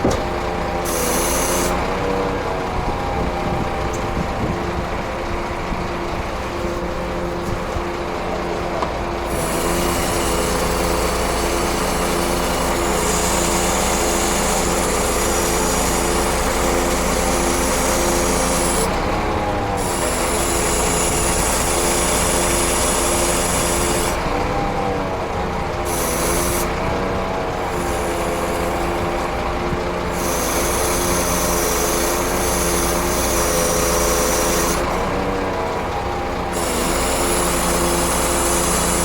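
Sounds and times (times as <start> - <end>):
diesel truck engine running: 1.7 - 25.9, 34.0 - 39.0.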